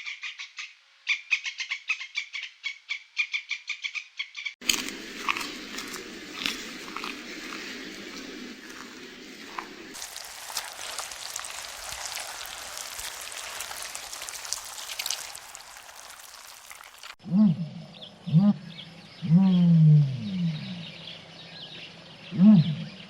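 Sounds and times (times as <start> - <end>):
steady patter of water: 5.6 - 17.2.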